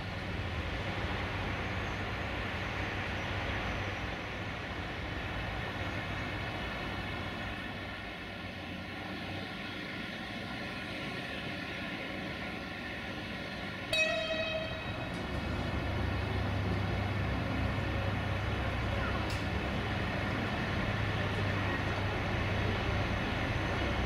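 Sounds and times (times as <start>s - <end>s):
train diesel engine running: 0.0s - 24.0s
train horn blast: 13.9s - 15.5s.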